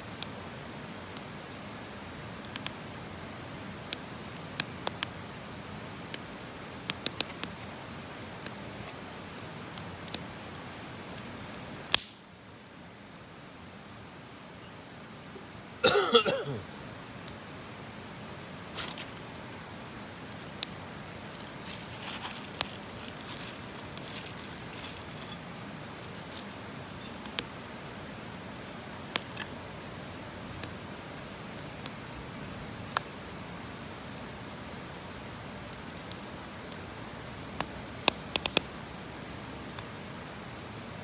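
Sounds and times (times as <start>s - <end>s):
fire hiss: 0.0s - 41.0s
campfire pops: 2.4s - 2.9s, 3.8s - 5.2s, 6.1s - 7.6s, 9.7s - 10.4s, 11.1s - 12.3s, 26.0s - 27.5s, 28.6s - 29.5s, 30.5s - 32.0s, 32.8s - 33.5s, 34.3s - 40.1s.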